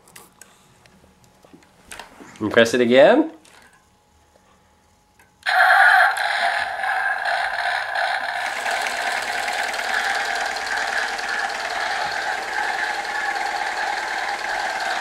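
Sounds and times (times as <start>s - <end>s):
toy tractor engine sound effect: 5.5s - 15.0s.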